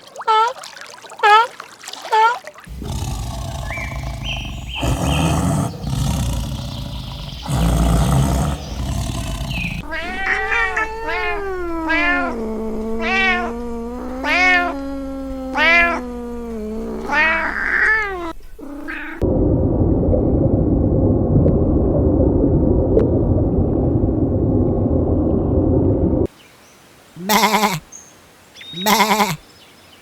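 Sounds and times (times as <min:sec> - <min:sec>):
cat drawn-out cry: 0:07.4 - 0:14.8, 0:15.4 - 0:19.2, 0:27.2 - 0:27.8, 0:28.8 - 0:29.4
cat meowing: 0:09.6 - 0:14.8, 0:15.4 - 0:19.2, 0:27.2 - 0:27.8, 0:28.8 - 0:29.4.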